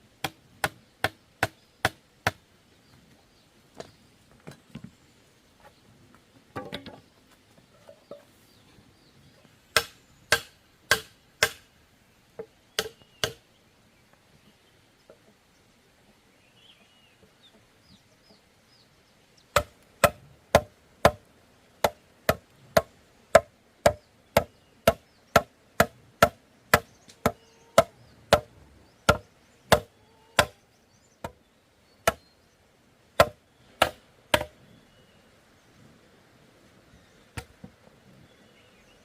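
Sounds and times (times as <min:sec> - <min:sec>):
sharp strikes on bamboo: 0:00.2 - 0:02.4, 0:09.7 - 0:11.7, 0:12.4 - 0:13.4, 0:19.5 - 0:21.2, 0:21.8 - 0:28.5, 0:29.1 - 0:30.6, 0:32.0 - 0:32.2, 0:33.2 - 0:34.6
faint bird chirps: 0:12.6 - 0:19.5, 0:26.9 - 0:32.7, 0:34.5 - 0:35.9.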